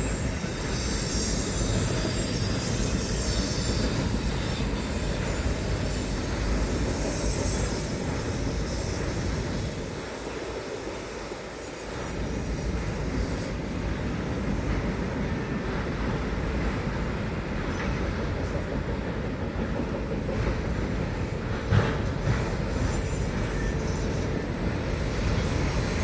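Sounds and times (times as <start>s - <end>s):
high wheel squeal: 0.0s - 10.1s, 22.6s - 26.0s
train wheels rumbling on rails: 0.0s - 26.0s.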